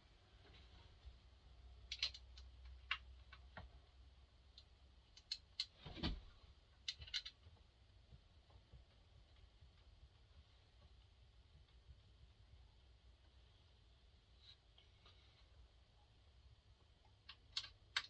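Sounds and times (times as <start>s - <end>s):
clicks and knocks of parts handled: 1.8s - 3.7s, 4.5s - 7.6s, 17.0s - 18.0s.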